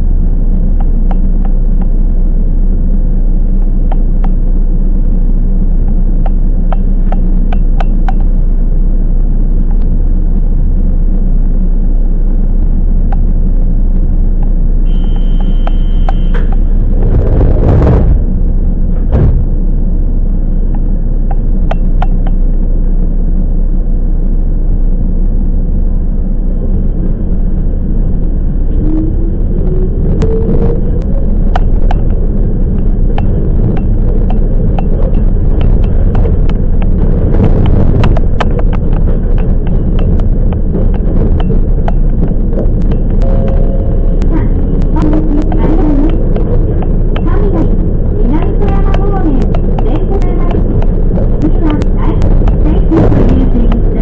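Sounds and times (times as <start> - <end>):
train rumble: 0.0 - 54.0
high ringing tone: 14.8 - 17.0, 42.8 - 47.8
loud whoosh: 14.9 - 20.4, 26.5 - 48.4.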